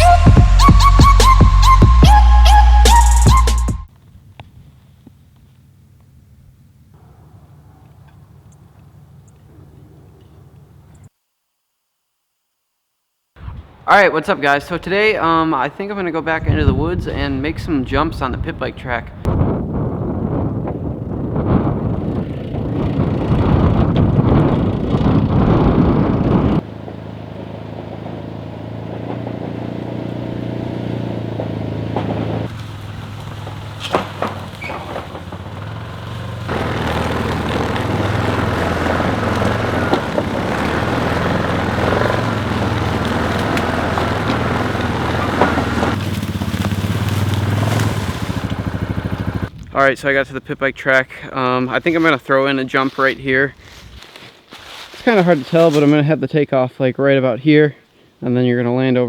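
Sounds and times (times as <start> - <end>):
off-road vehicle engine running: 0.0 - 11.1, 19.2 - 49.6.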